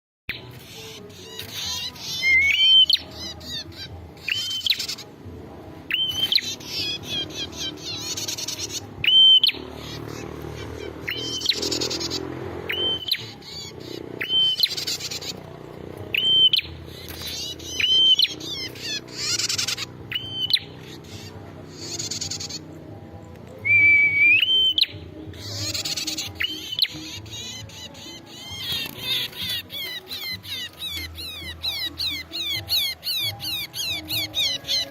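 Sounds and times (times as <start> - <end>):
harsh buzzy bird calls: 0.3 - 34.9
bird hooked whistles: 5.9 - 10.0, 11.0 - 15.3, 16.1 - 20.8, 23.6 - 27.6.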